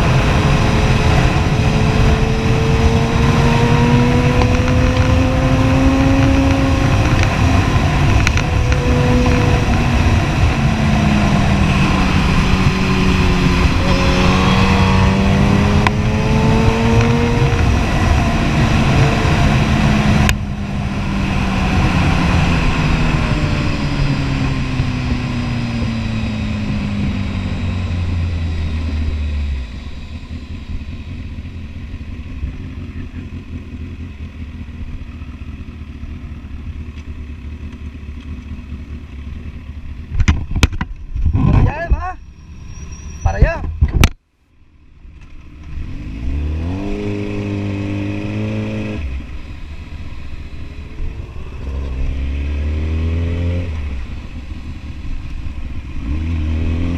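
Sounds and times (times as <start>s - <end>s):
motorcycle engine accelerating: 0.0s - 43.2s, 45.0s - 56.9s.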